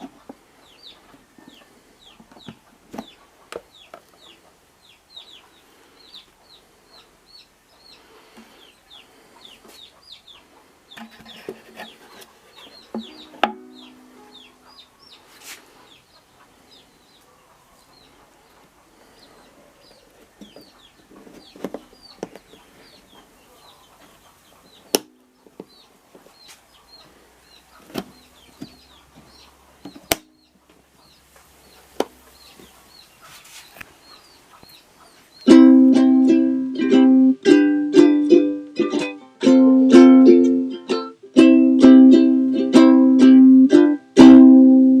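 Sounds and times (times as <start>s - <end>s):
faint bird chirps: 0.6s - 35.5s
ukulele strummed in chords: 13.0s - 14.4s, 35.5s - 45.0s.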